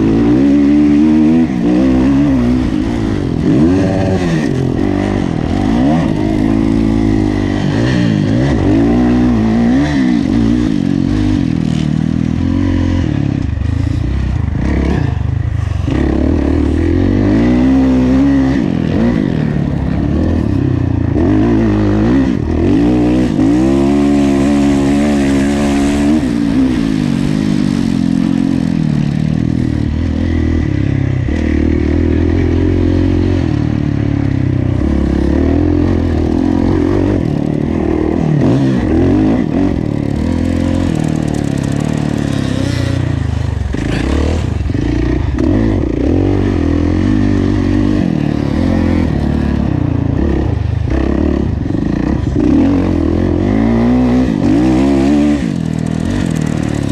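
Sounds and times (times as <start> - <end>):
motocross engine revving: 0.0 - 56.9
motorbike clatter: 35.3 - 47.6, 54.3 - 56.9.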